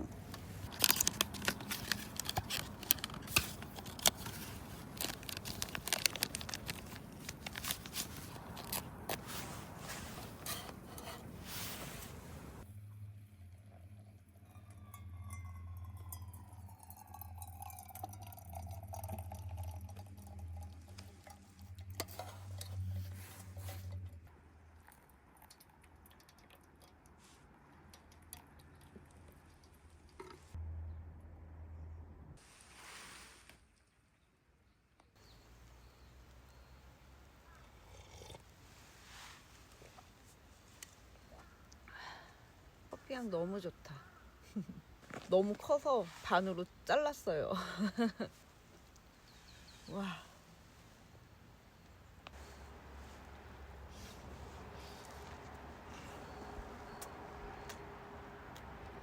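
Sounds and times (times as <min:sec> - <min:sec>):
paper crinkling: 0:00.4 - 0:12.6.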